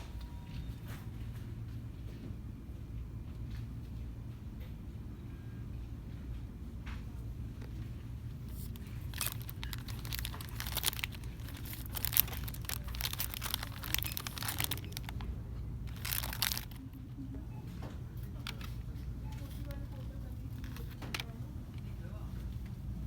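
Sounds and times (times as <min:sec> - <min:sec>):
low steady hum: 0:00.0 - 0:23.0
crinkly plastic packaging rustling: 0:07.6 - 0:17.0, 0:18.2 - 0:21.4.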